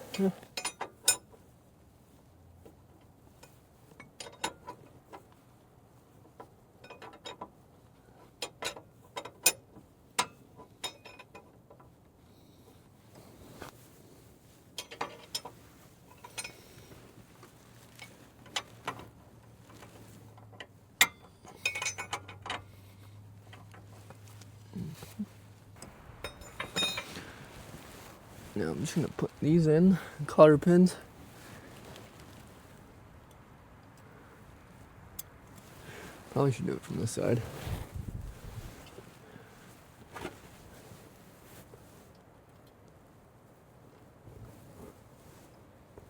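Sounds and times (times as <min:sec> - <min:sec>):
metal tools clinking: 0:21.0 - 0:22.6, 0:26.2 - 0:27.3.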